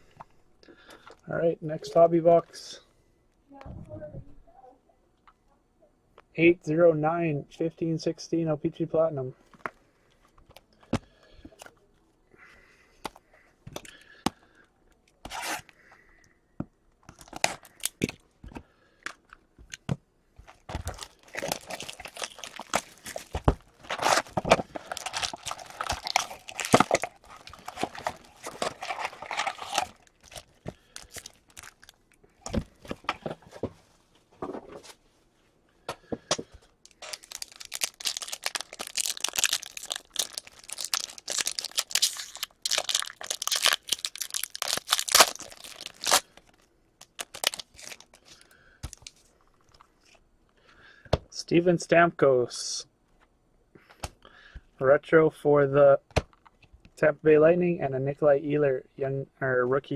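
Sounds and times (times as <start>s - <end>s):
wrappers tearing and crinkling: 20.5s - 32.1s, 36.8s - 49.2s.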